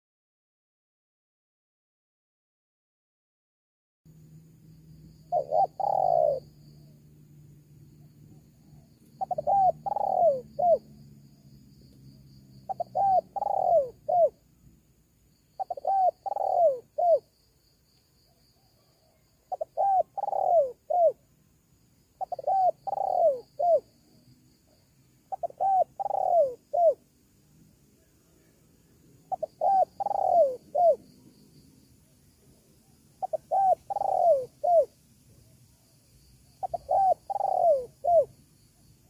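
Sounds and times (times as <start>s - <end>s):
dove cooing: 5.2s - 6.9s, 8.4s - 10.9s, 12.6s - 14.4s, 15.6s - 17.3s, 18.6s - 21.2s, 22.2s - 24.0s, 25.3s - 27.0s, 29.2s - 31.1s, 33.2s - 35.0s, 36.6s - 38.4s.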